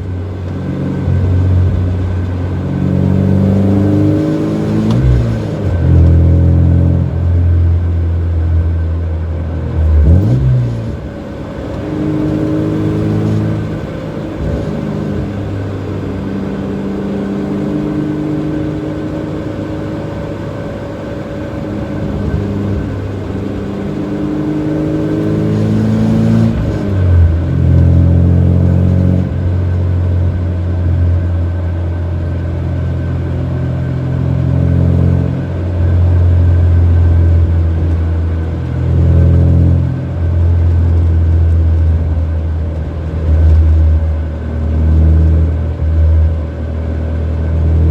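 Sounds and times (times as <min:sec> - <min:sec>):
car exhaust heard from cabin: 0:00.0 - 0:47.9.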